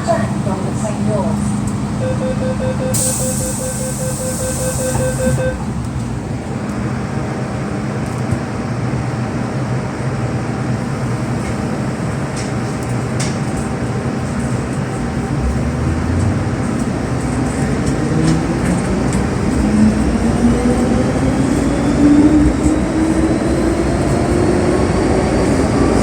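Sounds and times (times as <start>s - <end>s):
door warning beeps: 2.0s - 5.7s
air hissing from door: 3.0s - 5.2s.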